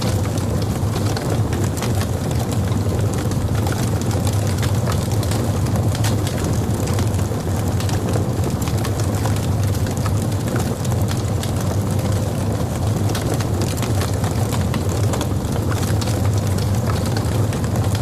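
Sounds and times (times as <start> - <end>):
log fire crackling: 0.0 - 18.0.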